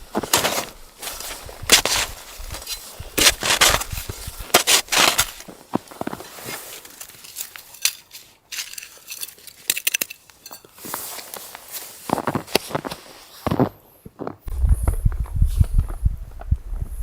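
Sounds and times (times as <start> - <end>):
gear being handled: 0.2 - 13.0.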